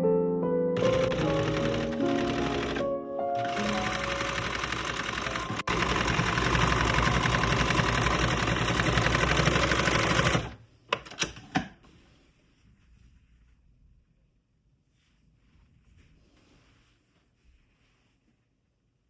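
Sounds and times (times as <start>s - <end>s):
small machine clattering: 0.8s - 2.8s, 3.4s - 11.4s.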